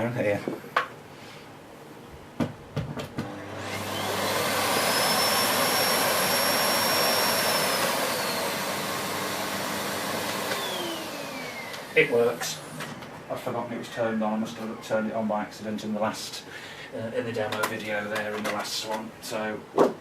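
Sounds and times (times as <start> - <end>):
vacuum cleaner motor whining: 3.2 - 13.1.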